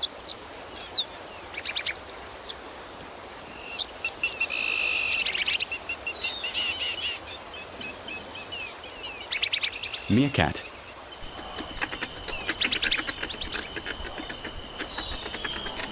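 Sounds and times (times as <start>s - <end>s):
insects trilling: 0.0s - 15.9s
short high chirping calls: 11.2s - 15.9s.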